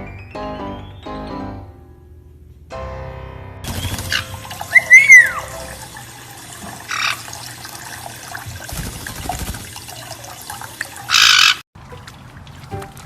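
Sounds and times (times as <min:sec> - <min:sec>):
bird whistle: 0:00.0 - 0:01.3, 0:03.8 - 0:05.6
water running: 0:03.6 - 0:13.0
harsh bird squawk: 0:03.8 - 0:05.7, 0:06.9 - 0:07.3, 0:11.1 - 0:11.6.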